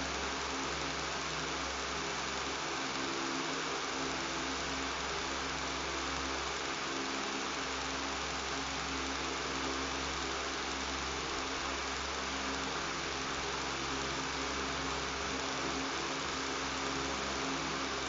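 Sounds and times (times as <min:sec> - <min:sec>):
electric fan running: 0:00.0 - 0:18.0.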